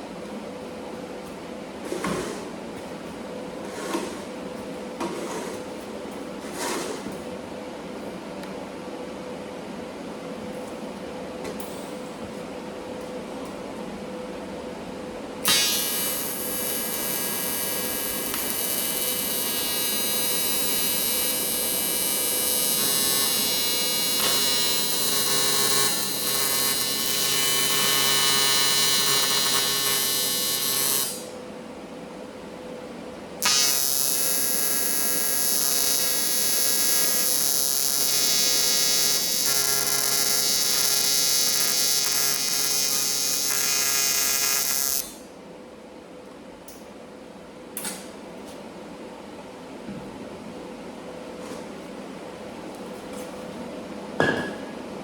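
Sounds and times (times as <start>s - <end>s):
faint machine hum: 0.0s - 55.0s
welding arc buzzing: 15.4s - 31.4s, 33.4s - 45.3s.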